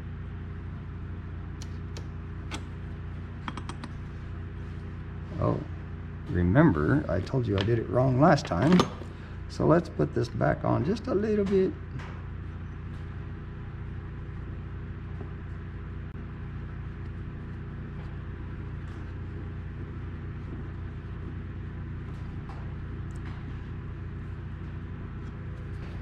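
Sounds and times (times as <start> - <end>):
low motor hum: 0.0 - 26.0.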